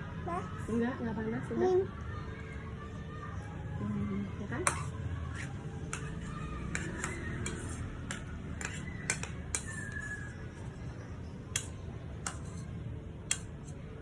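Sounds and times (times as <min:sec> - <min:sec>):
metal spoon scraping bowl: 0:04.6 - 0:10.8, 0:11.6 - 0:13.9
spoon tapping bowl: 0:05.9 - 0:10.0.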